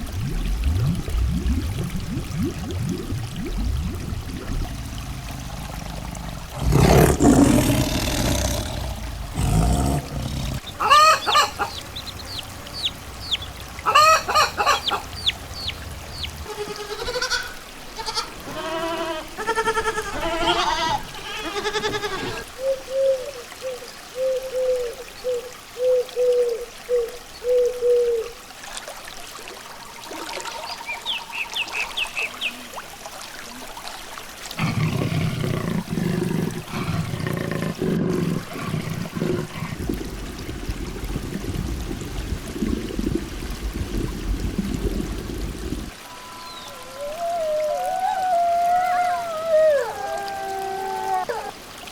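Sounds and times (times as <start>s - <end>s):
animal calls: 5.6s - 22.5s.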